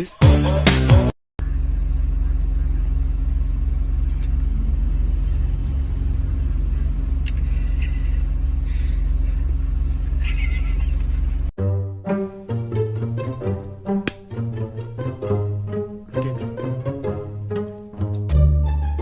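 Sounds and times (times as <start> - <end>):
motor vehicle engine drone: 1.4 - 11.5, 12.4 - 19.0.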